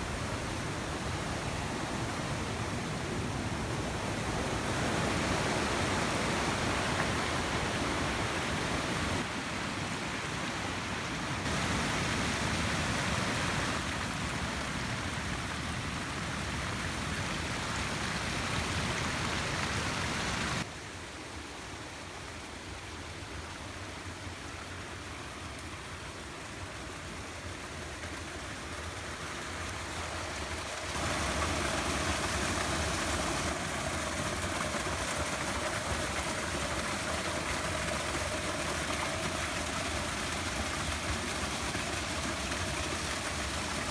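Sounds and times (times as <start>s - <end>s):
rain: 0.0s - 43.9s
wind: 0.0s - 43.9s.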